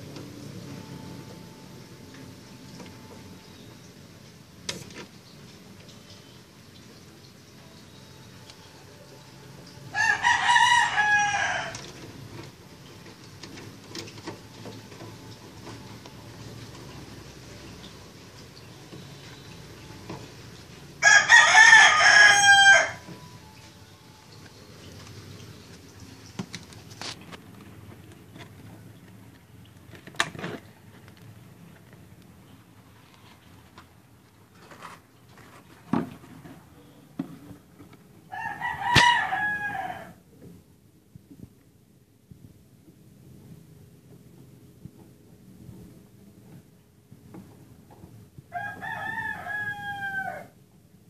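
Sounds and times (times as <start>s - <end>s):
low steady hum: 0.0s - 51.0s
rooster crowing: 9.9s - 11.9s, 21.0s - 23.2s, 38.3s - 40.2s, 48.5s - 50.6s.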